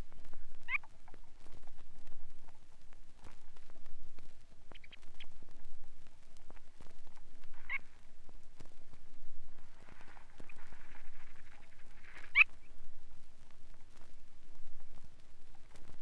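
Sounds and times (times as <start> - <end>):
sandpiper chirrups: 0.0 - 16.0
vinyl record crackle: 0.0 - 16.0
soft bird twittering: 0.6 - 1.0, 4.7 - 5.4, 7.6 - 7.9, 10.2 - 12.8.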